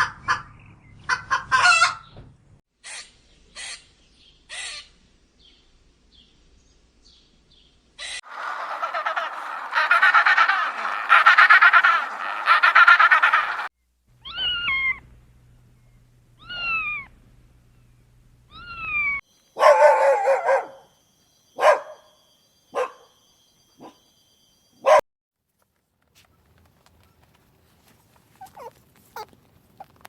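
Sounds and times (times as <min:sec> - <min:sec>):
frog croaking: 0:08.2 - 0:13.7
cat meowing: 0:14.2 - 0:15.0
dog barking: 0:19.6 - 0:20.9, 0:21.6 - 0:22.1, 0:22.7 - 0:23.2, 0:23.8 - 0:24.0.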